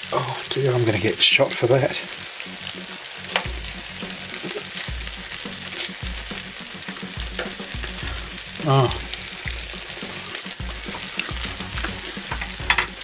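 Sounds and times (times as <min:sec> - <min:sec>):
rice sizzling in a frying pan: 0:00.0 - 0:13.0
spatula scraping a pan: 0:02.6 - 0:13.0.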